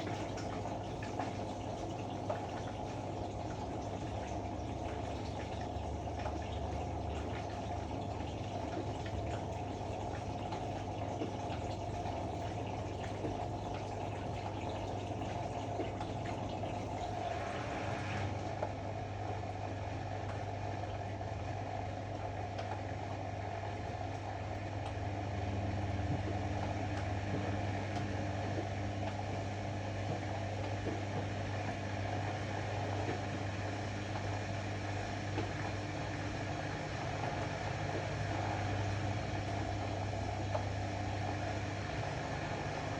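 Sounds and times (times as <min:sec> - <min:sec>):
hissing water fill: 0:00.0 - 0:18.4
washer-dryer humming: 0:00.0 - 0:42.9.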